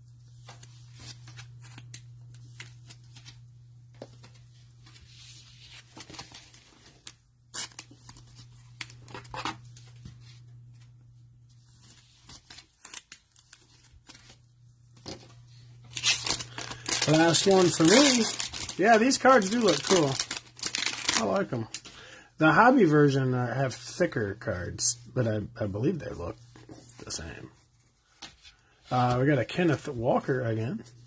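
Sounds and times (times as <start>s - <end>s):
cellophane wrappers crinkling: 12.0s - 14.4s, 15.9s - 21.9s
cards being handled: 15.9s - 21.9s.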